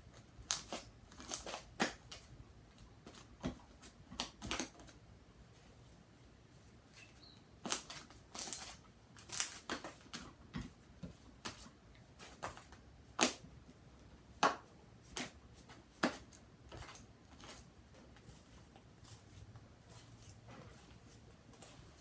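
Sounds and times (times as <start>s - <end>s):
small objects clicking and tapping: 7.6s - 10.7s.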